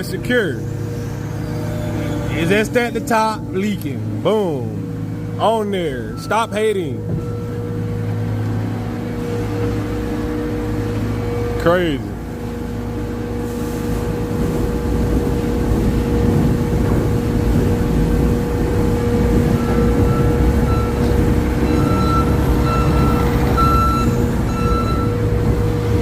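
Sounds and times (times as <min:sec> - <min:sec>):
truck diesel engine running: 0:00.0 - 0:26.0
short high-pitched beeps: 0:06.0 - 0:07.5.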